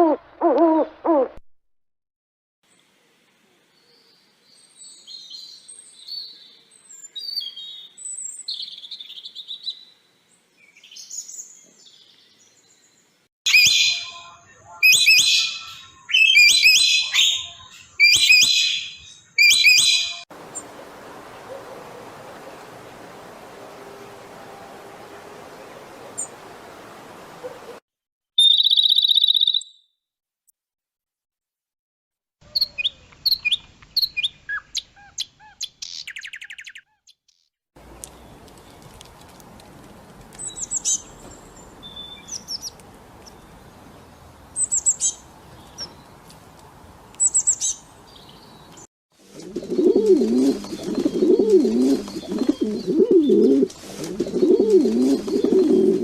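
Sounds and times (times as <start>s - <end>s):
pigeon cooing: 0.0s - 1.4s, 21.2s - 23.5s, 24.2s - 27.8s, 49.4s - 56.0s
high bird calls and chirps: 13.5s - 20.3s, 28.4s - 29.8s, 32.5s - 38.9s, 49.6s - 53.6s, 54.3s - 56.0s.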